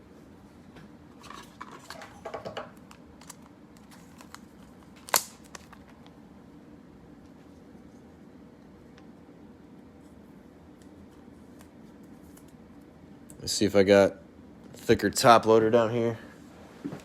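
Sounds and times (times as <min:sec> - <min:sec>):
cards rustling: 0:02.9 - 0:06.1.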